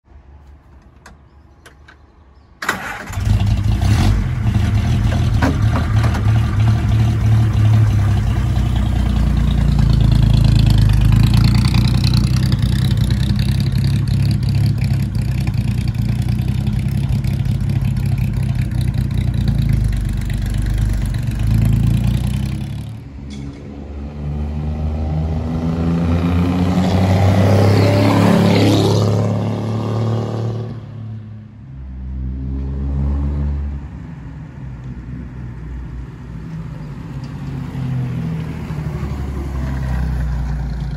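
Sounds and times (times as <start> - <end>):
car engine starting and revving: 2.6 - 23.1, 23.8 - 31.0.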